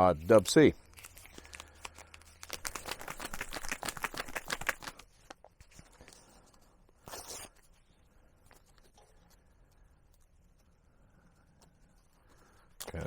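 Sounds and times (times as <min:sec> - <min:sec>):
packet crinkling and clicking: 0:00.3 - 0:05.4.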